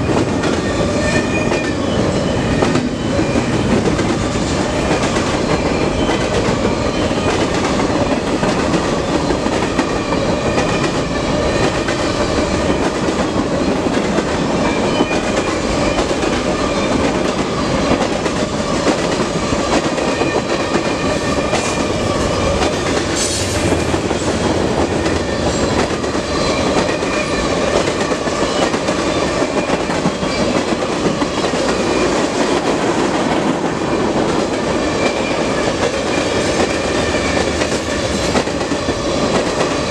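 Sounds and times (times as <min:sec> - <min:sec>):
steel train wheels on rails: 0:00.0 - 0:39.9.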